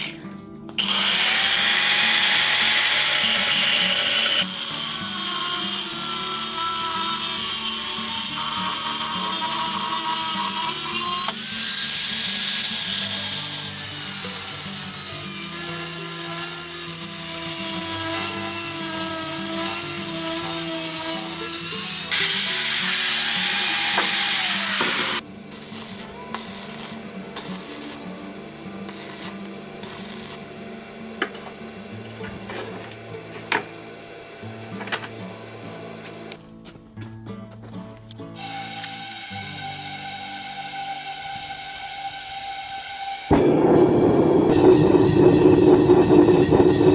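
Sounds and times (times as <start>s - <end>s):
power tool high whine: 0.8s - 26.9s, 38.4s - 46.9s.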